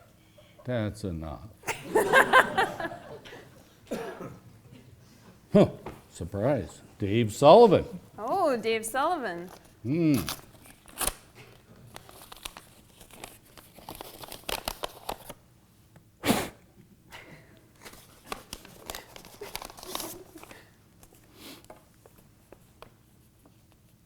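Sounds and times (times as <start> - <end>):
paper envelope tearing and crinkling: 10.1 - 11.3, 12.0 - 15.4, 17.8 - 20.5.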